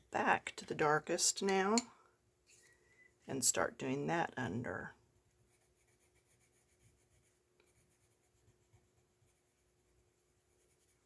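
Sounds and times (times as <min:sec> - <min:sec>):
pencil scratching on paper: 0:05.4 - 0:11.0.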